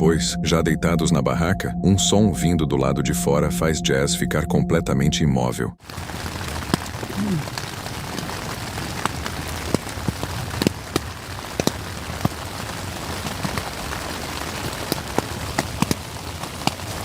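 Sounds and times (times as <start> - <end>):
rain hissing on tent: 5.8 - 17.0
raindrops hitting tent: 5.8 - 17.0.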